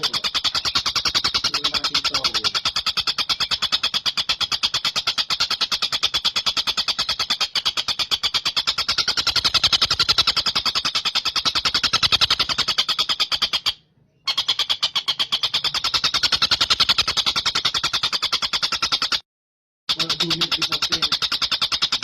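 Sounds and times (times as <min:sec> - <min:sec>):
kingfisher rattling trill: 0:00.0 - 0:19.2, 0:19.9 - 0:22.0.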